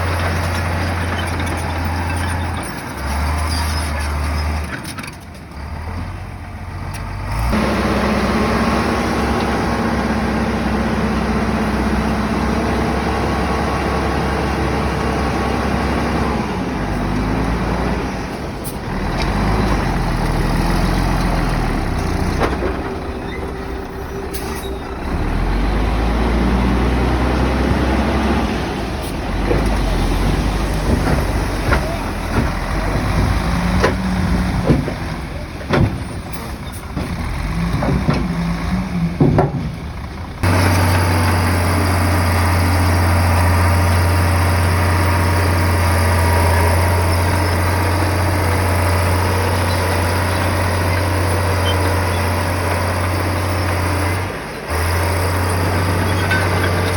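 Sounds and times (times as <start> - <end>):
bulldozer diesel engine: 0.0 - 56.9
sharp metal knocks and clanks: 30.8 - 38.4.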